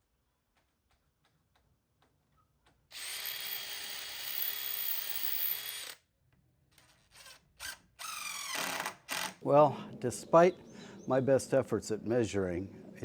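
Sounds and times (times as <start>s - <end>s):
power drill running: 2.9s - 6.0s.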